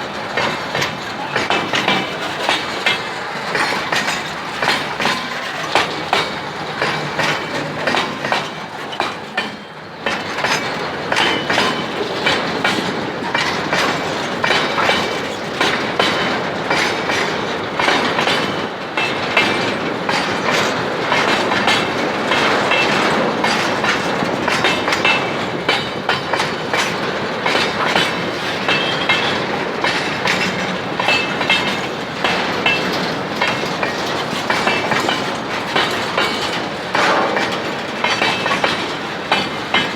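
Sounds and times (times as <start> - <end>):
train wheel squeal: 0.0 - 39.9
train wheels clacking on rail joints: 0.0 - 39.9.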